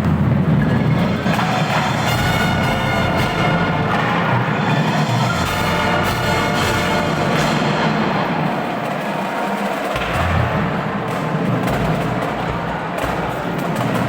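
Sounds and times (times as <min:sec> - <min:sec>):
drum hits: 0:00.0 - 0:14.0
brass section chords: 0:00.9 - 0:09.1.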